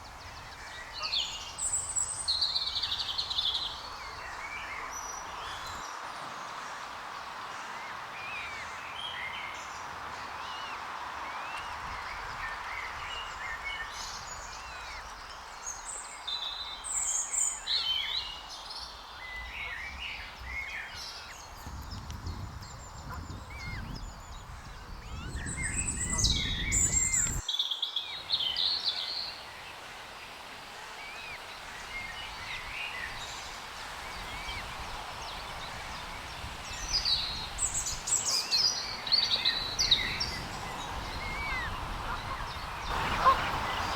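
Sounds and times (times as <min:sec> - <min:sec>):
birds chirping and calling: 0:22.3 - 0:27.4, 0:31.0 - 0:43.9.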